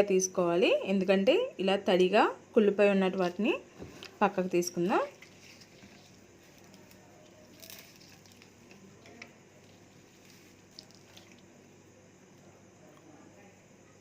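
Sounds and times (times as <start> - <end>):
coriander sprigs rustling: 3.1 - 11.8
soft clicks of herbs pulled apart: 5.2 - 11.5.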